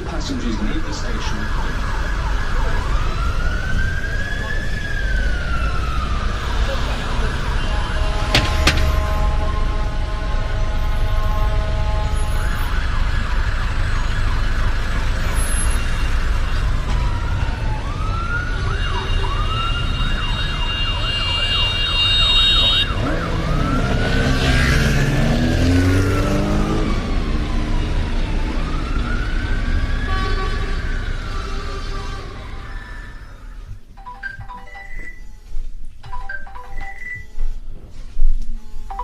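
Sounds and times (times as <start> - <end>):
emergency vehicle sirens: 0.0 - 38.0
street traffic rumble: 0.0 - 39.0
multi-tone alarm: 34.0 - 37.7, 38.7 - 39.0.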